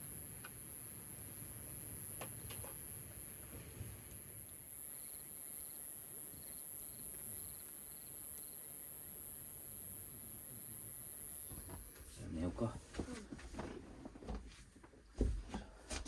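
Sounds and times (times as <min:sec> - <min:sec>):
insects chirping in trills: 0:00.0 - 0:12.1.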